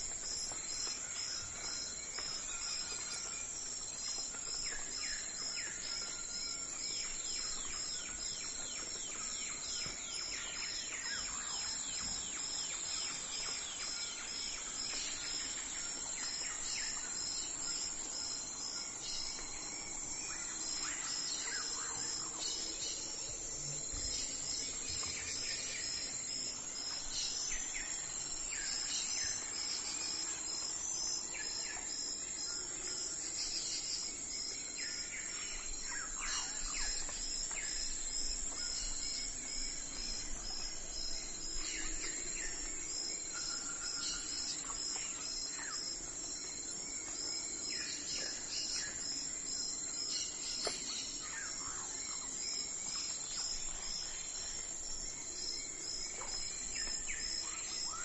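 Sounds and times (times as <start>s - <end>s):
high-pitched insect trill: 0.0s - 58.0s.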